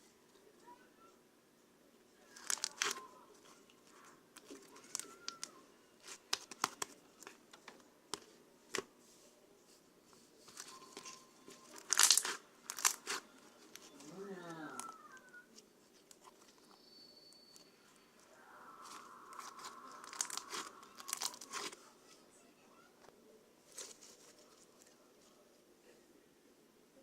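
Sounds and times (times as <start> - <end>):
crinkling and rustling: 2.3 - 16.9, 17.5 - 22.2, 23.0 - 25.5.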